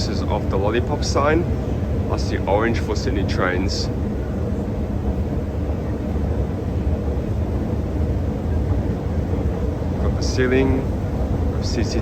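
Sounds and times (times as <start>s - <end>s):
underground station low rumble: 0.0s - 12.0s.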